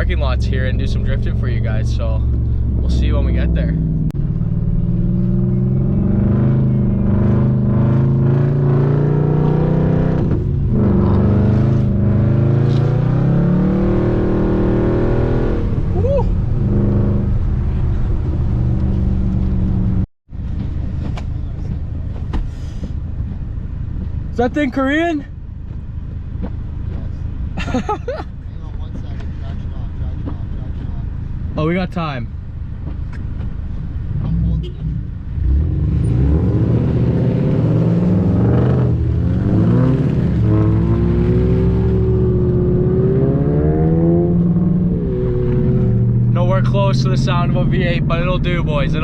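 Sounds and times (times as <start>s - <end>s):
car engine running: 0.0s - 8.1s
car engine accelerating: 0.0s - 22.4s, 32.8s - 49.0s
tyre and road rumble: 0.0s - 49.0s.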